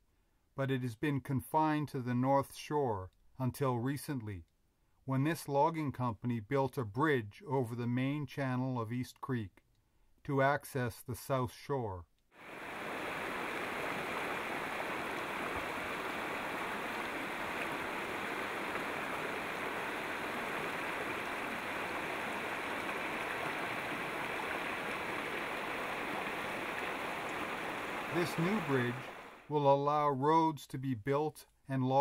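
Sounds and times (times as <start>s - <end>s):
creek water flowing: 12.4s - 29.6s.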